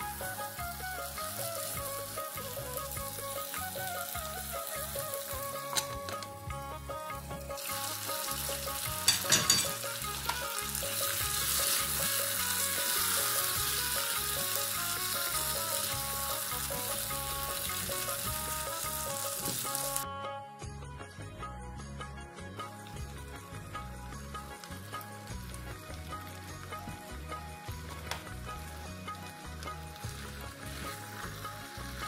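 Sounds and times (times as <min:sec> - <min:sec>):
meat sizzling in a pan: 0:00.0 - 0:20.0, 0:22.6 - 0:32.0
background music: 0:00.0 - 0:32.0
metal clinks: 0:09.1 - 0:09.8.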